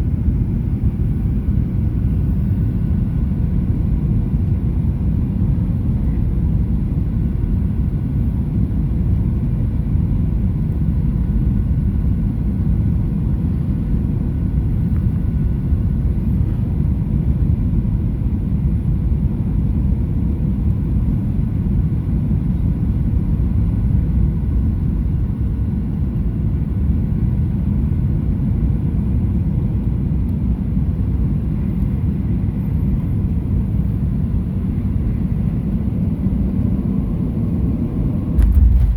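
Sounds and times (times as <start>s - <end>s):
faint steady whine: 0.0s - 18.0s
airplane cabin engine rumble: 0.0s - 38.9s.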